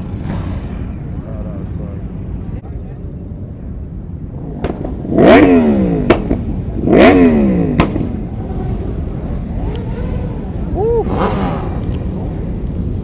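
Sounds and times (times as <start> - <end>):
other motorcycles rumbling: 4.0 - 13.0
exhaust crack: 4.3 - 13.0
motorcycle engine revving: 4.4 - 13.0.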